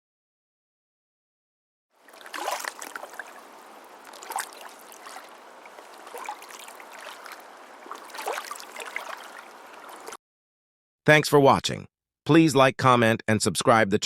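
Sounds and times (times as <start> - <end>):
water running: 2.0 - 10.2
water splashing surge: 2.0 - 10.2.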